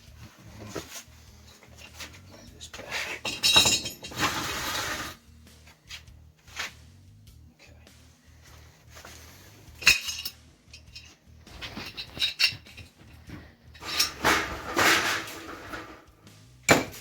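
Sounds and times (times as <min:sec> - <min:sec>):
metal tools clinking and clattering: 0:00.6 - 0:05.2, 0:09.7 - 0:16.1.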